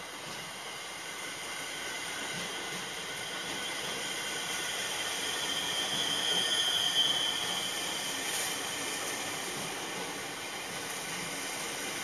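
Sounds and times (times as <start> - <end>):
electric train hissing: 0.1 - 12.0
high brake squeal: 2.0 - 9.5
thin high whines: 2.3 - 8.8.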